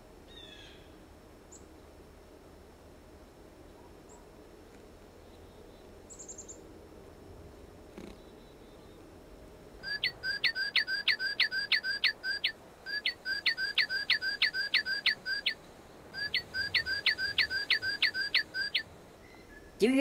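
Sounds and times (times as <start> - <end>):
songbird singing whistled notes: 5.3 - 6.6, 9.8 - 19.8.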